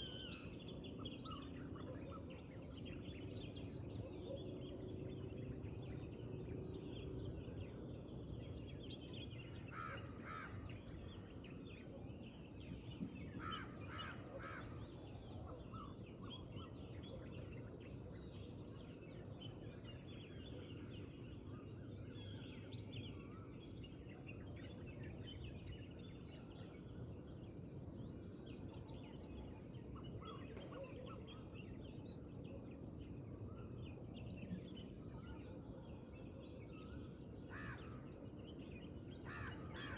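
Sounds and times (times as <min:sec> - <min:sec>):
harsh large bird calls: 0:00.0 - 0:00.5
wind in forest: 0:00.0 - 0:39.9.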